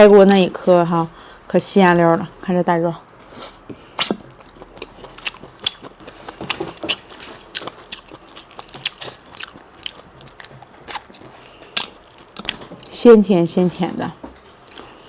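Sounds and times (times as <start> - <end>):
person chewing seafood: 3.0 - 12.9, 14.6 - 15.0.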